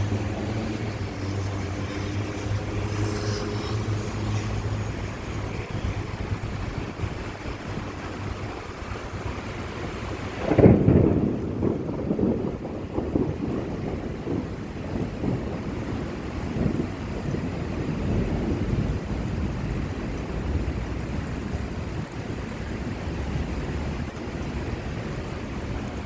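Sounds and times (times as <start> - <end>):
heavy rain hissing: 0.0 - 16.0
thunderclap rumbling: 0.0 - 26.0.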